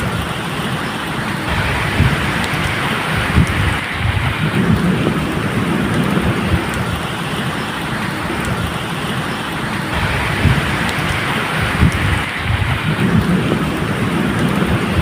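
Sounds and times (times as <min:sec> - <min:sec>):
distant thunder rumble: 0:00.0 - 0:15.0
steady medium rain: 0:00.0 - 0:15.0
water drips ticking: 0:00.0 - 0:15.0.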